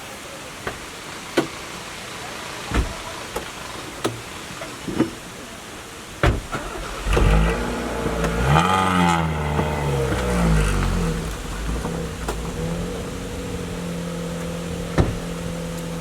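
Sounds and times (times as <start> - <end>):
vehicle engine starting and revving: 6.4 - 16.0.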